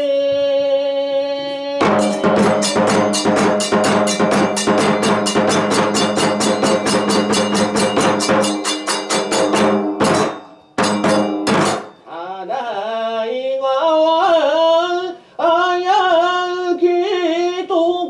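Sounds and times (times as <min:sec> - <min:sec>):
drums struck in fast beat: 0:01.8 - 0:12.1
ringing sustained tone: 0:01.8 - 0:12.1.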